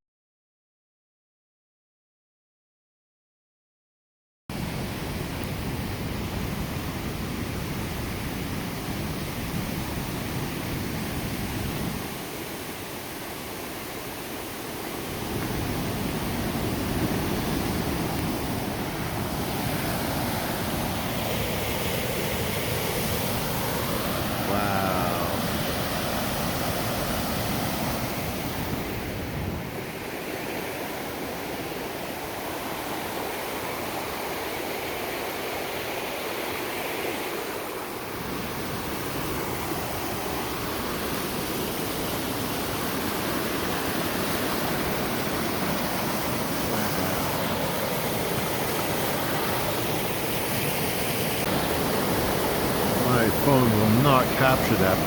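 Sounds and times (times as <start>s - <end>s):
waterfall roaring: 15.4s - 28.1s, 42.4s - 55.0s.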